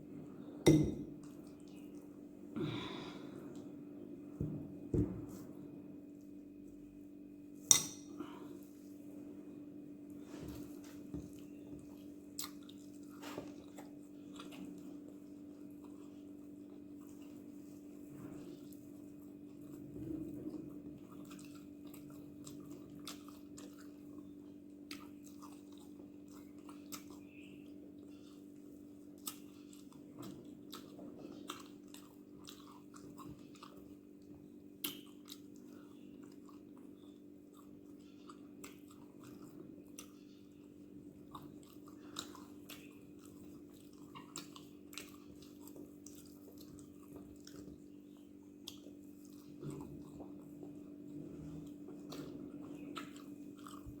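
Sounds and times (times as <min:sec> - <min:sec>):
person chewing food: 0:00.0 - 0:06.9, 0:07.7 - 0:54.0.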